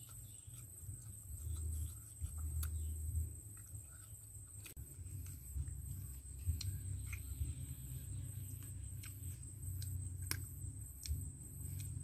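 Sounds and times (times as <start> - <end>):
chewing and lip-smacking: 0.0 - 7.6, 8.5 - 12.0
low rumble: 4.8 - 12.0.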